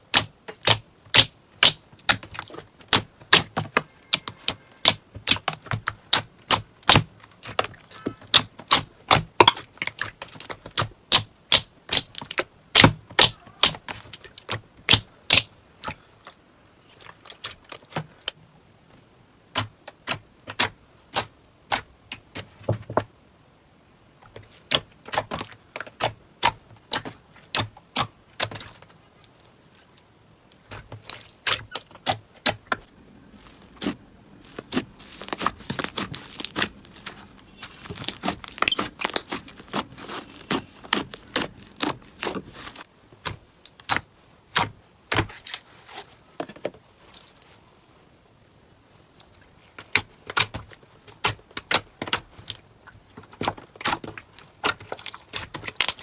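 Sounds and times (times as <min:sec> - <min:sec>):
slime squeezed by hand popping: 0:33.3 - 0:42.8.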